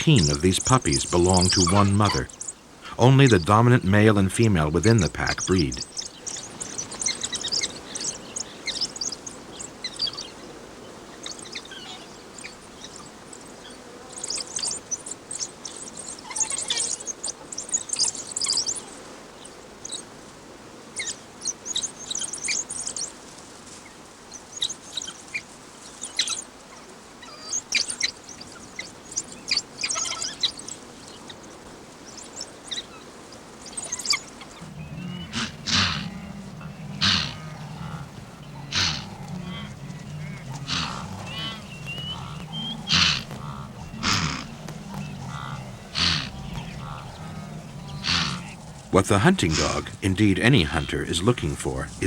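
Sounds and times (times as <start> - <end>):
bird-like chirps and twitters: 0.0 - 2.6, 3.3 - 10.4, 33.6 - 48.9
faint steady hiss: 0.0 - 52.0.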